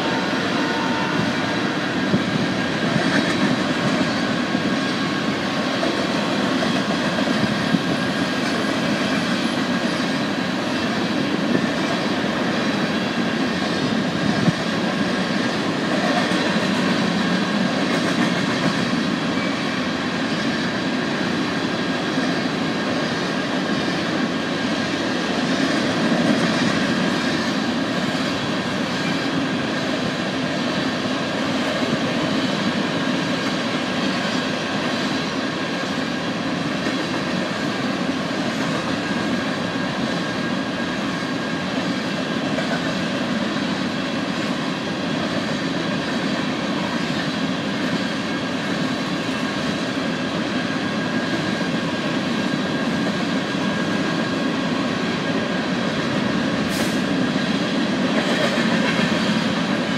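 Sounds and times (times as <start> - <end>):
wheels clacking over rail joints: 0.0 - 19.8
rumble of steel wheels on rail: 0.0 - 59.9.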